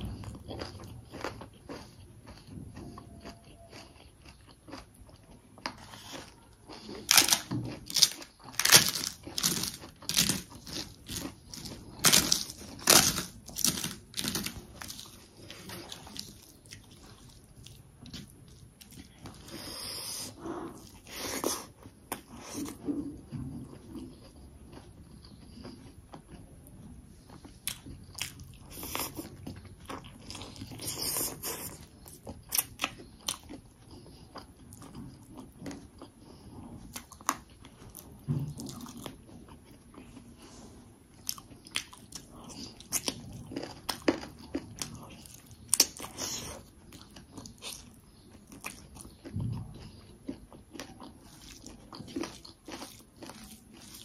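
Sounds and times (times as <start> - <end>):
sharp crunches and mouth clicks: 0.0 - 20.3
person chewing food: 0.0 - 54.0.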